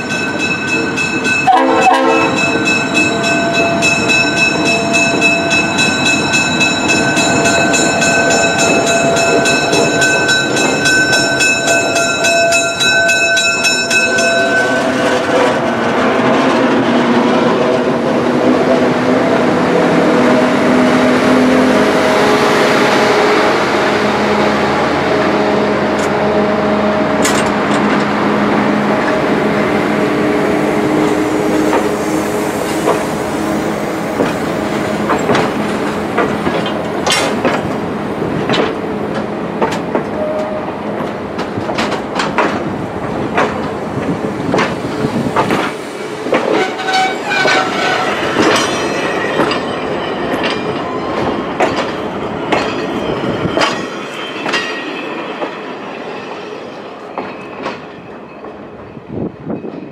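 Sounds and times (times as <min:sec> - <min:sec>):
wheels clacking over rail joints: 0:00.0 - 0:18.7, 0:27.2 - 0:29.4, 0:34.1 - 0:55.9
steel wheels rumbling on rails: 0:00.0 - 0:59.9.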